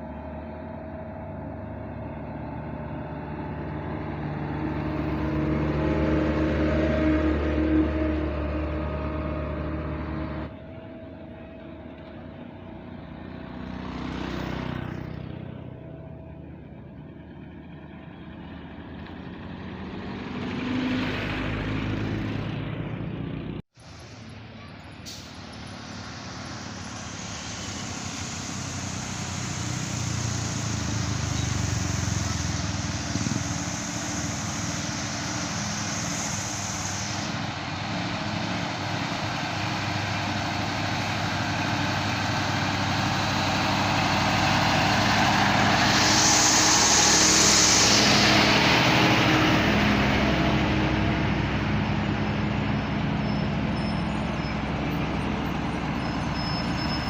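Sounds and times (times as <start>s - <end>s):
heavy truck diesel engine straining: 0.0s - 57.0s
air brake hiss: 23.8s - 51.5s.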